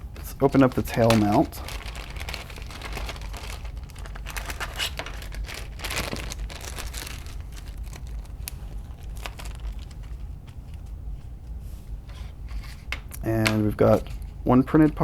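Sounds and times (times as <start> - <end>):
plastic bag crinkling: 0.2 - 10.4.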